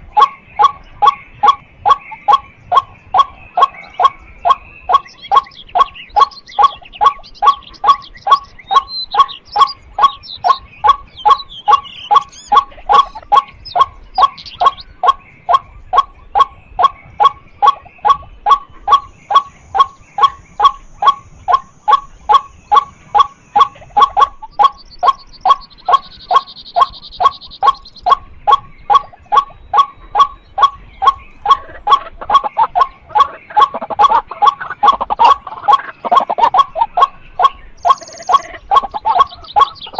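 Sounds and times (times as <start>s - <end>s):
bird calling kwak: 0.0s - 39.9s.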